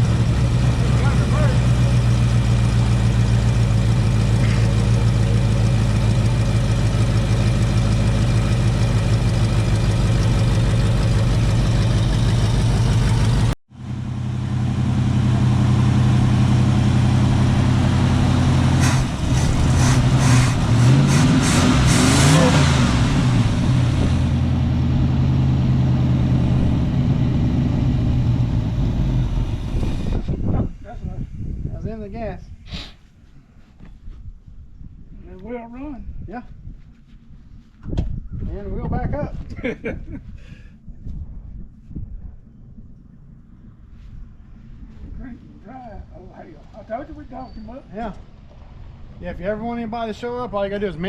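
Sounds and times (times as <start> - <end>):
car engine idling and revving: 0.0 - 31.0, 48.0 - 50.2.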